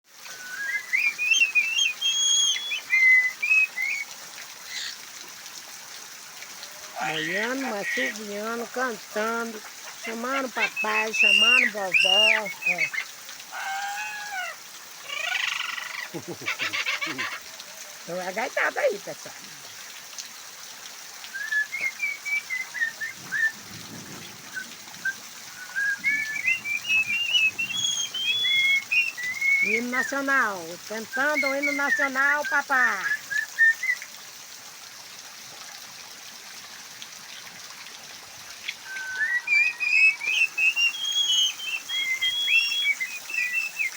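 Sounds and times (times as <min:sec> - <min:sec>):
hiss of falling water: 0:00.1 - 0:43.9
parrot whistling a tune: 0:00.3 - 0:04.0, 0:21.3 - 0:23.6, 0:24.6 - 0:29.8, 0:38.8 - 0:43.9.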